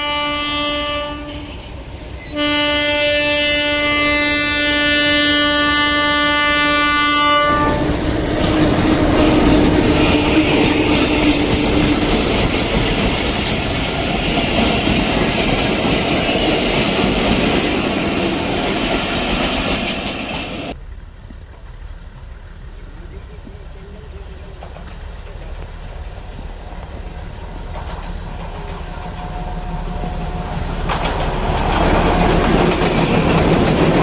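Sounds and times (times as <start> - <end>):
locomotive horn: 0.0 - 12.2
train rumble: 0.0 - 34.0
wheels clattering over rail joints: 7.6 - 22.7, 24.4 - 34.0.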